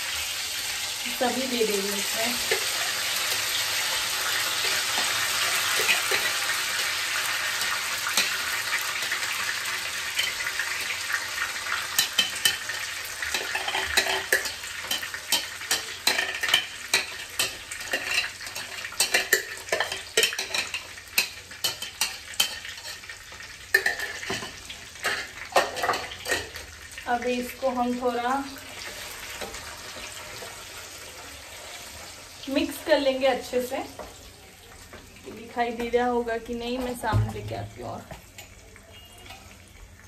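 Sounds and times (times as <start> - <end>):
paste sizzling in hot oil: 0.0 - 34.8
metal spoon scraping and stirring: 12.0 - 23.1.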